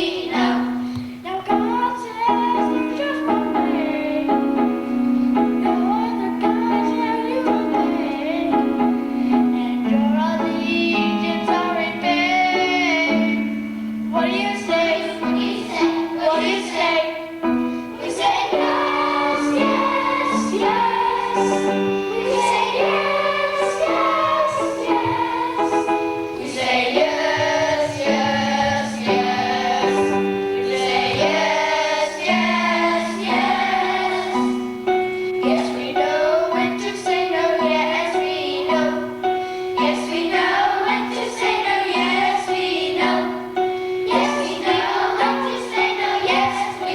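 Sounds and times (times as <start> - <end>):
people singing together: 0.0 - 46.9
instrumental accompaniment with beat: 17.6 - 36.3.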